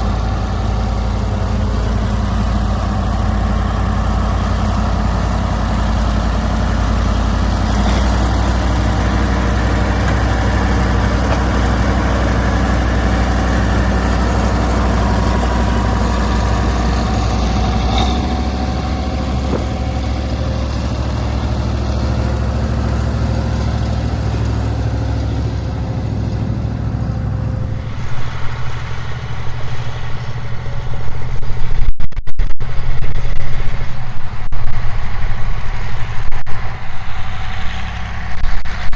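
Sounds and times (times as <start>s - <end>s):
tractor diesel engine running: 0.0s - 31.8s, 32.6s - 38.9s.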